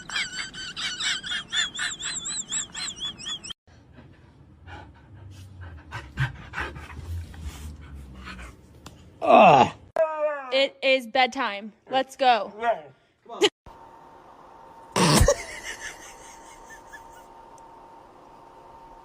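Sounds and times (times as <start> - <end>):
dog panting: 3.8 - 8.6.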